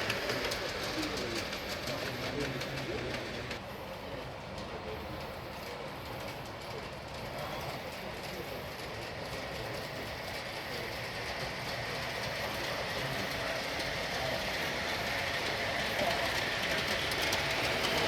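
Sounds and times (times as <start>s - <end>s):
model train wheels rolling on rails: 0.0s - 18.0s.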